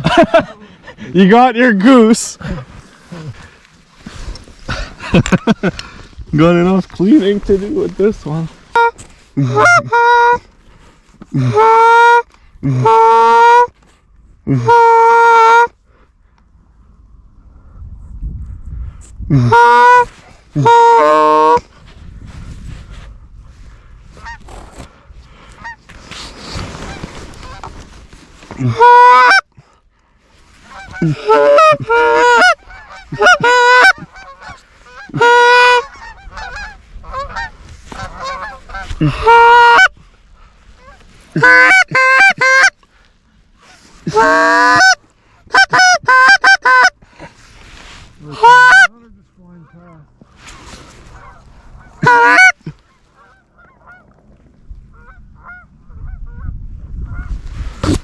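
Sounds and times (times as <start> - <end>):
goose honking: 8.7 - 10.4, 11.4 - 12.2, 12.8 - 13.7, 14.6 - 15.7, 19.4 - 21.6, 28.5 - 29.5, 30.6 - 40.0, 40.8 - 42.8, 43.7 - 47.0, 48.2 - 54.2, 54.9 - 55.7.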